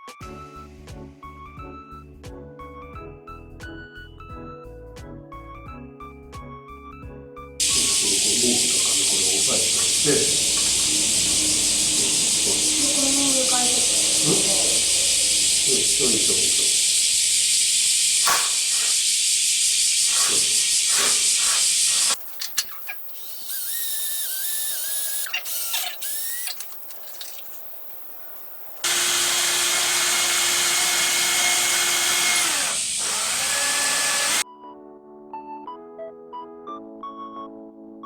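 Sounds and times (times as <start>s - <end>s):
electric power tool running: 7.6s - 34.4s.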